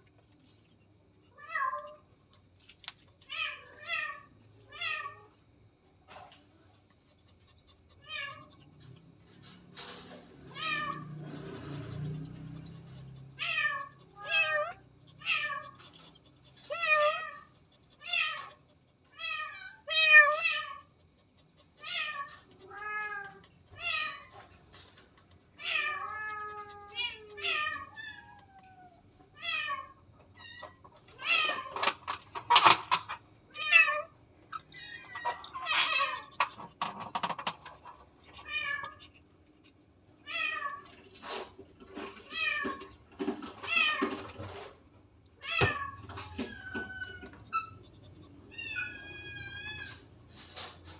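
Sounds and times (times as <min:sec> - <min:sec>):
cat meowing: 0:07.9 - 0:08.6, 0:10.5 - 0:11.2, 0:12.4 - 0:20.9, 0:21.8 - 0:24.5, 0:25.6 - 0:31.9, 0:38.2 - 0:39.2, 0:40.2 - 0:41.1, 0:45.4 - 0:50.1.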